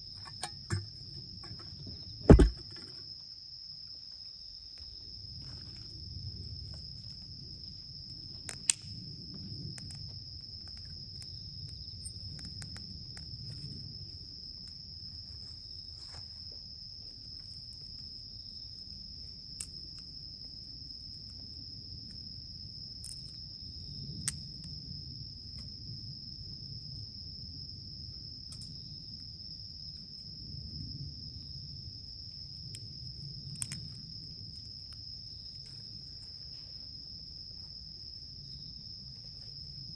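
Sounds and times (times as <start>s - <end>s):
insects chirring: 0.0s - 39.9s
campfire popping: 0.2s - 3.1s, 8.0s - 14.0s.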